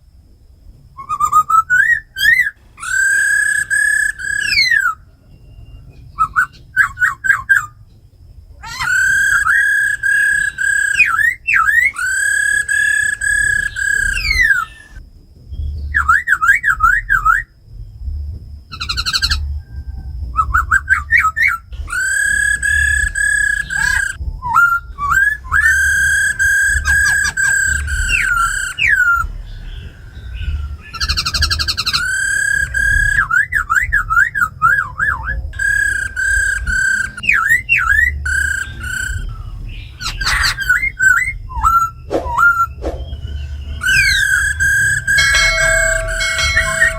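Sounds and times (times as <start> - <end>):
bird whistling and trilling: 1.0 - 7.7, 8.6 - 15.0, 15.6 - 17.5, 18.7 - 19.8, 20.4 - 46.9.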